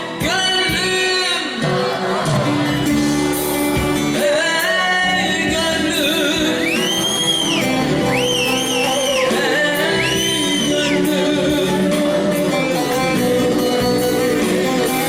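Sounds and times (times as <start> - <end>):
live instrumental accompaniment: 0.0 - 15.0.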